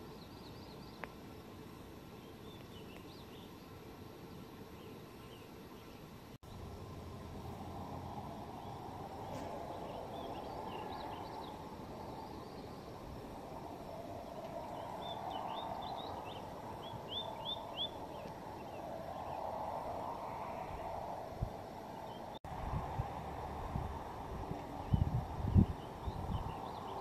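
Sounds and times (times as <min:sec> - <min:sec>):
small songbird chirping: 0:00.0 - 0:01.2, 0:02.0 - 0:06.7, 0:08.2 - 0:21.0, 0:21.9 - 0:22.4, 0:24.8 - 0:27.0
steady outdoor hiss: 0:00.0 - 0:27.0.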